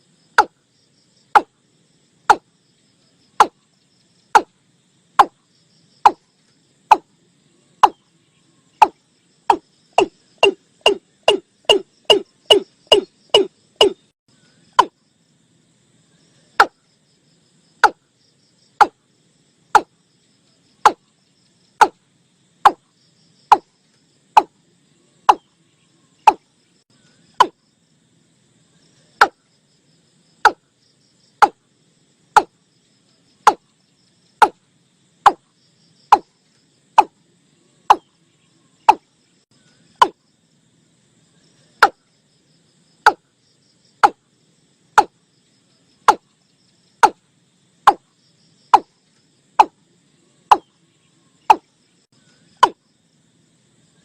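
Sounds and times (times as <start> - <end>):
bird hollow call notes: 7.7 - 15.0.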